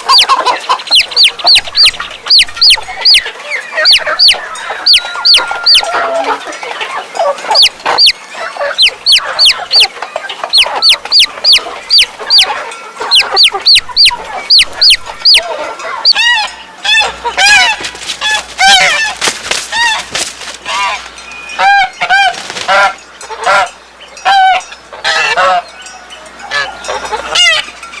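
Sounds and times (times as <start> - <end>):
high falling bird peeps: 0.0 - 5.9, 7.5 - 16.2
bird honking calls: 0.0 - 27.8.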